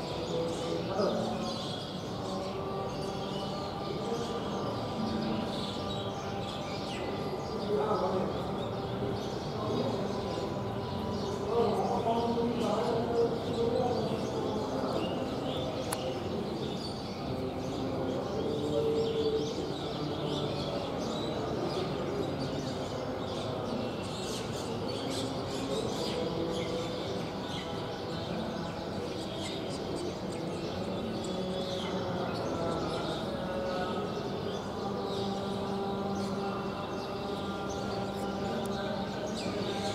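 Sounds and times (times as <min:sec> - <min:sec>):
small birds chirping: 0:00.0 - 0:39.9
steady background din: 0:00.0 - 0:39.9.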